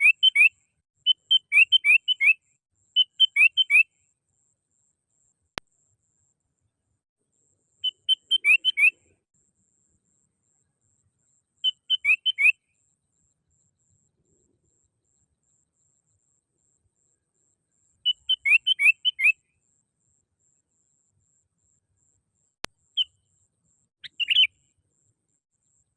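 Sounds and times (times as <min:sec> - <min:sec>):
bulbul singing: 0:00.0 - 0:02.4, 0:03.0 - 0:03.9, 0:07.8 - 0:09.2, 0:11.6 - 0:12.6, 0:18.0 - 0:19.5, 0:24.0 - 0:24.7
click: 0:05.5 - 0:05.7.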